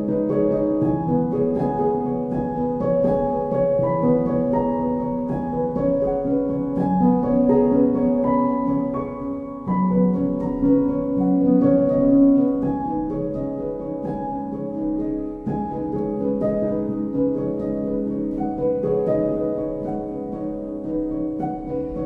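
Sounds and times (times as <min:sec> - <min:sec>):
gentle instrumental music: 0:00.0 - 0:22.0.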